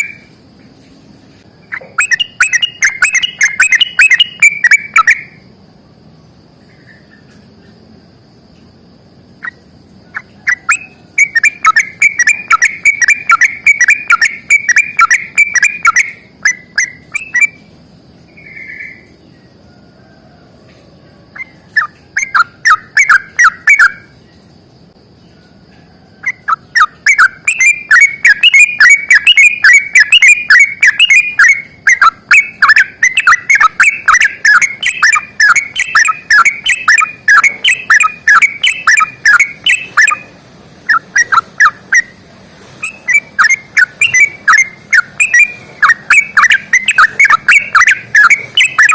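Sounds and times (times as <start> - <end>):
bulbul singing chattering notes: 1.7 - 5.4, 10.2 - 17.7, 21.4 - 24.2, 26.3 - 42.2, 42.8 - 48.9.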